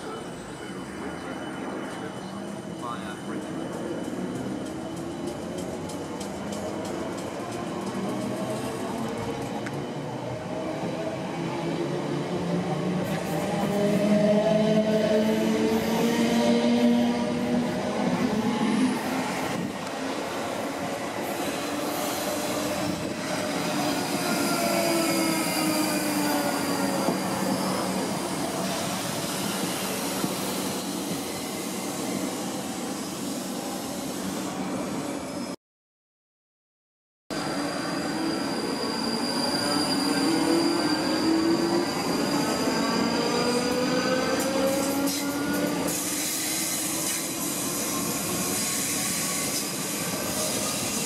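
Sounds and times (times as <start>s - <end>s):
train wheels rumbling on track: 0.0s - 34.6s.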